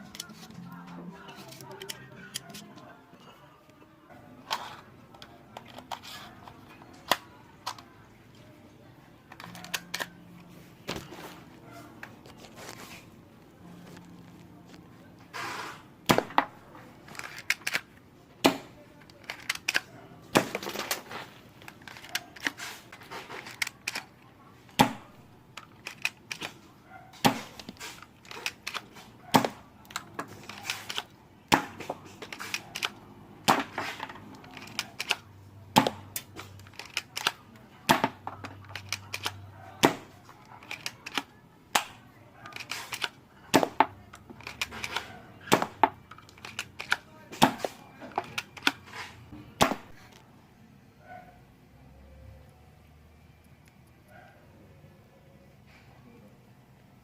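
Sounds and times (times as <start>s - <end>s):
gun mechanism clicks: 1.5s - 2.6s, 9.3s - 10.1s, 17.1s - 17.9s, 19.0s - 19.9s, 23.3s - 24.1s, 25.6s - 26.6s, 27.5s - 29.0s, 29.8s - 31.1s, 32.2s - 33.6s, 34.3s - 35.2s, 36.2s - 37.4s, 38.6s - 39.4s, 40.6s - 41.9s, 42.5s - 43.2s, 44.4s - 45.1s, 46.1s - 47.1s.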